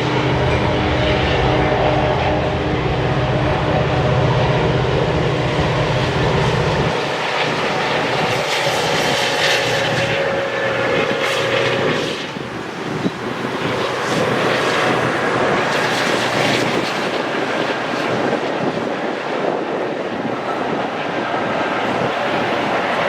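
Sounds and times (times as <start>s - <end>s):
diesel locomotive engine droning: 0.0s - 23.0s
train cars rushing and rattling: 0.0s - 23.0s.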